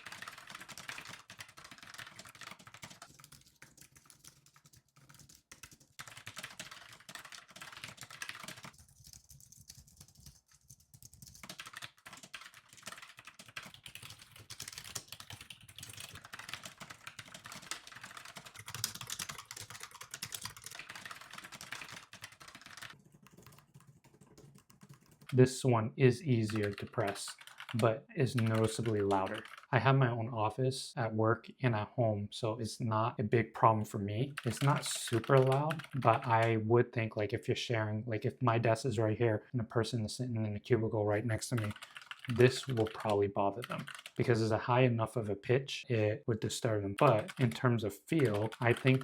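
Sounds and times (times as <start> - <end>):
typing on keyboards: 0.0 - 25.4, 26.5 - 29.7, 34.3 - 36.5, 41.4 - 44.3, 47.0 - 49.0.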